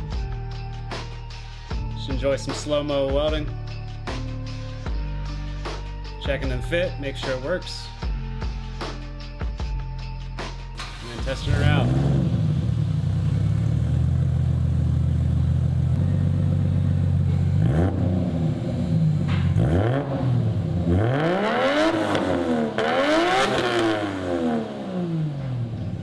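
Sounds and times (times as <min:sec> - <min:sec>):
car engine idling and revving: 0:08.0 - 0:26.0.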